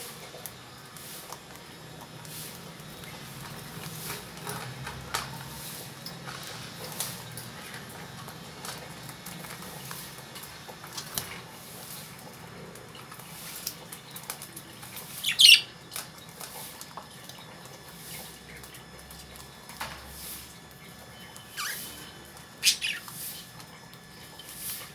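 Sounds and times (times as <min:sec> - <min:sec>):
lovebird squawk: 0:15.2 - 0:15.7, 0:21.6 - 0:22.0, 0:22.6 - 0:23.4.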